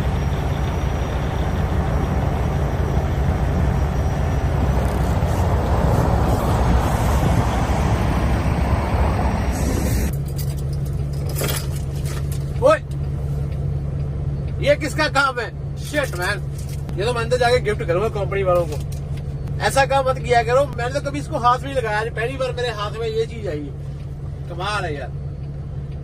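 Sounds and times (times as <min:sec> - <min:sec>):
diesel truck engine running: 0:00.0 - 0:26.0
loud rushing noise: 0:04.3 - 0:10.1.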